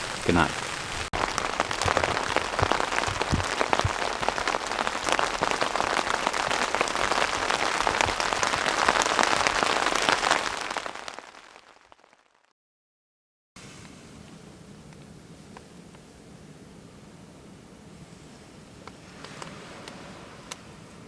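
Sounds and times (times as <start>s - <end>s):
heavier water drips: 0.0s - 11.8s
heavy rain on a tarp: 0.0s - 12.4s.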